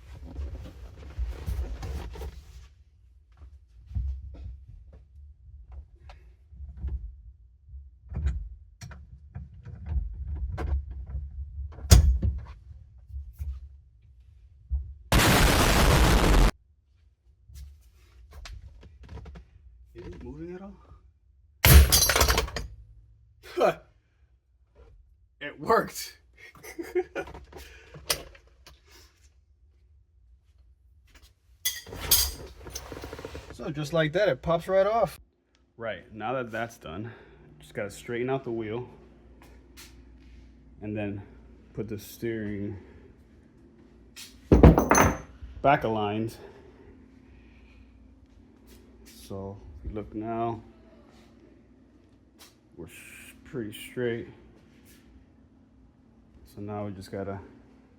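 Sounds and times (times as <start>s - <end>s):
tools knocking and clunking: 44.5s - 45.3s.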